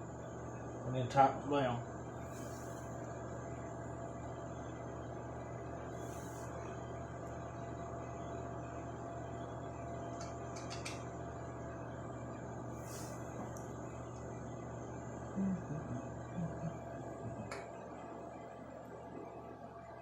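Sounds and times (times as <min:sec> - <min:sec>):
low background hum: 0:00.0 - 0:20.0
faint light clicks: 0:10.1 - 0:11.0.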